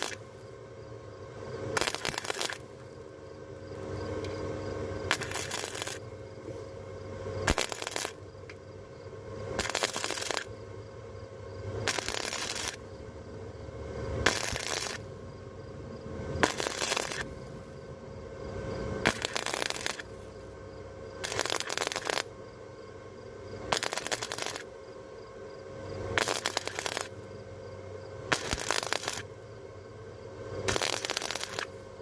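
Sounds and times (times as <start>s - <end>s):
welding arc crackling: 0.0s - 0.6s, 1.7s - 6.7s, 7.4s - 8.6s, 9.6s - 10.7s, 11.7s - 13.0s, 14.2s - 15.3s, 16.4s - 17.8s, 19.0s - 20.5s, 21.2s - 22.4s, 23.7s - 24.8s, 26.1s - 27.3s, 28.3s - 29.4s, 30.6s - 32.0s
welder hum: 0.0s - 32.0s.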